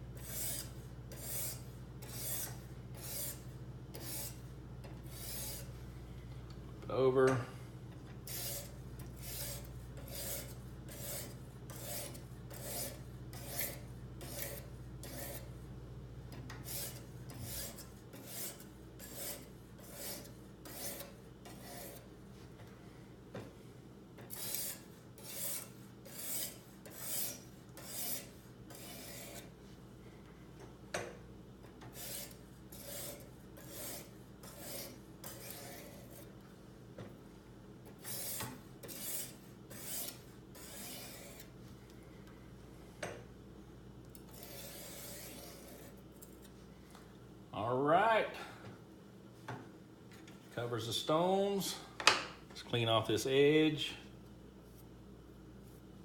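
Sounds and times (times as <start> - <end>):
sharpening stone rasping on knife: 0.2 - 4.4, 5.1 - 5.7, 8.3 - 15.5, 16.6 - 22.0, 24.3 - 29.5, 31.9 - 36.3, 38.0 - 41.5, 44.2 - 46.0.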